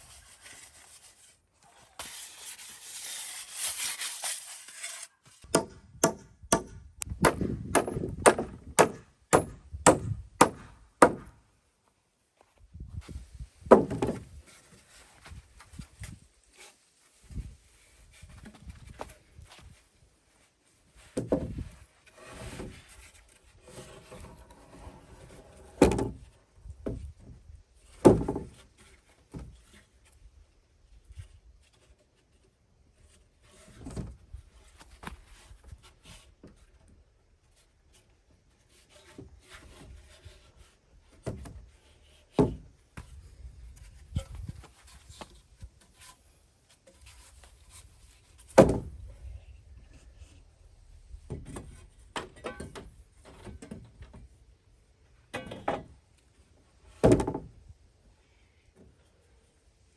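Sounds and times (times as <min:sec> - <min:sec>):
wood scraping and rubbing: 0:00.0 - 0:05.4
timber knocks and thumps: 0:05.5 - 0:11.3, 0:13.6 - 0:14.3.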